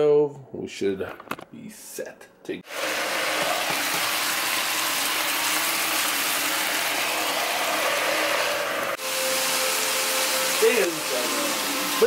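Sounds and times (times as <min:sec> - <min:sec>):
chicken sizzling in frying pan: 0:02.7 - 0:12.0.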